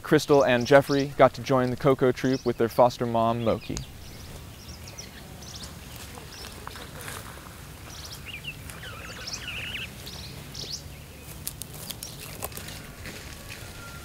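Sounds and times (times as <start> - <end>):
bird chirps and trills: 7.8 - 12.7.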